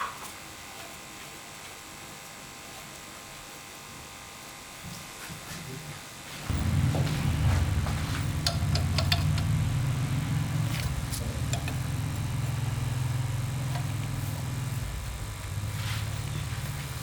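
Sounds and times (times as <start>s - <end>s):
engine idling: 6.5s - 17.0s.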